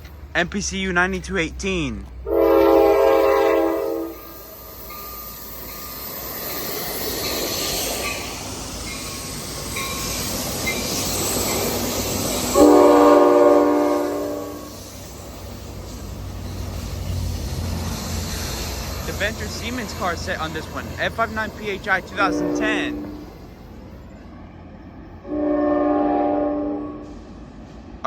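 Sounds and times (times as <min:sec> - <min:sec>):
train cars rumbling and clattering: 0:00.0 - 0:28.0
train horn blast: 0:02.2 - 0:04.3, 0:12.5 - 0:14.8, 0:22.2 - 0:23.3, 0:25.2 - 0:27.2.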